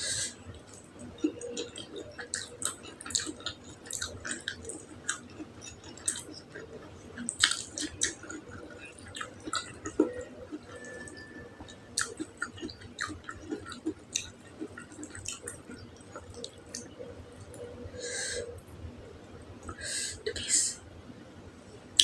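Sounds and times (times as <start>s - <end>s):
wet chewing and mouth smacks: 0.6s - 17.6s.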